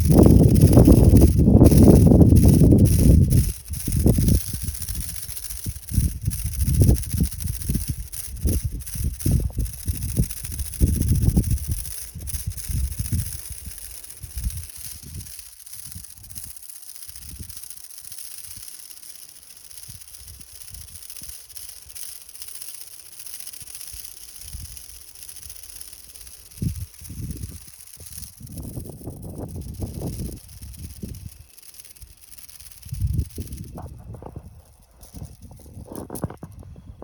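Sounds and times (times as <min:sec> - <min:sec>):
wind buffeting microphone: 0:00.0 - 0:16.5, 0:26.5 - 0:37.0
high-pitched hiss: 0:00.0 - 0:37.0.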